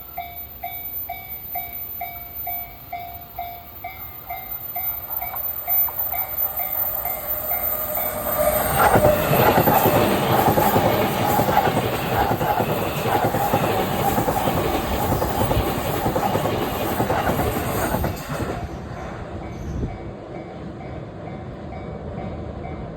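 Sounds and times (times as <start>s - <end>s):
train wheels clattering: 3.4s - 20.3s.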